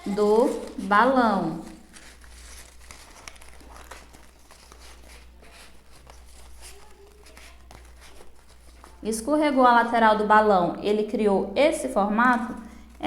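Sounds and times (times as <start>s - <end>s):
paper rustling and crinkling: 0.0s - 9.1s.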